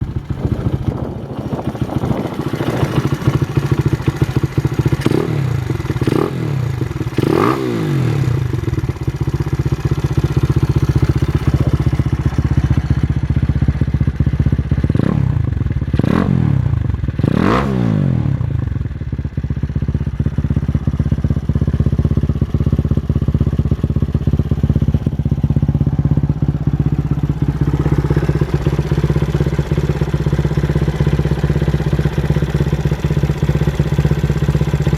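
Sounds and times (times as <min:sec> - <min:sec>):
motorcycle engine idling: 0:00.0 - 0:34.9
engine revving: 0:04.9 - 0:08.6, 0:14.9 - 0:18.6.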